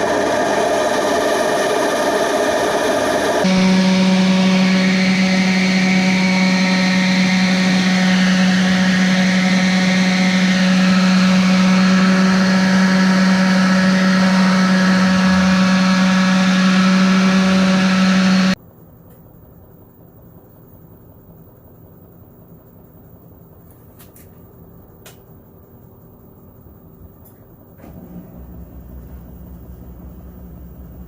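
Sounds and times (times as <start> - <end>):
power tool motor humming: 3.4 - 18.6.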